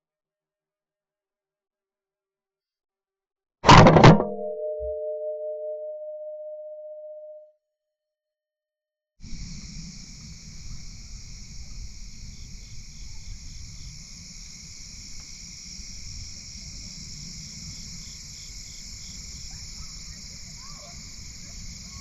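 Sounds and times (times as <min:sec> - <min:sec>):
crickets trilling: 0:09.2 - 0:22.0
pulsing insect call: 0:09.3 - 0:22.0.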